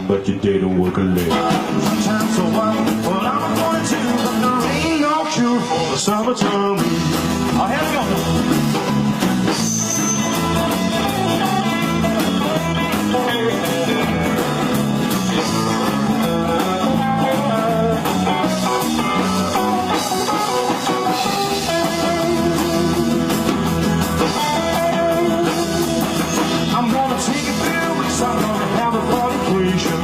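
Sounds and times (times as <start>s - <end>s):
bass line: 0.0s - 30.0s
driving drum beat: 0.0s - 30.0s
lead guitar: 0.0s - 30.0s.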